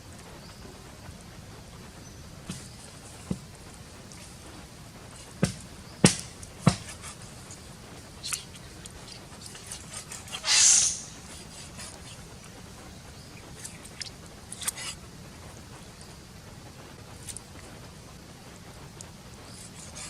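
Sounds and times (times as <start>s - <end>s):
sharp knocks: 5.4s - 7.0s
hissing scrape: 6.6s - 12.3s.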